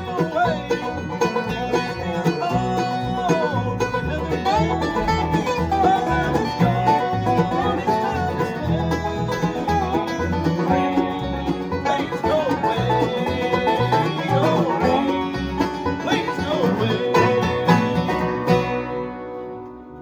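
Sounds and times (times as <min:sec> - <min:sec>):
banjo: 0:00.0 - 0:20.0
guitar: 0:00.0 - 0:20.0
low bass line: 0:00.0 - 0:20.0.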